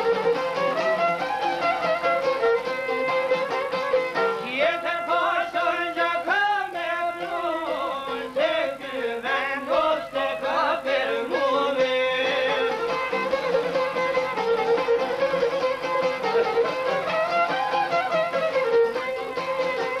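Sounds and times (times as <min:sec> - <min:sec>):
folk music with violin: 0:00.0 - 0:20.0
person singing ornamented melody: 0:04.4 - 0:12.9.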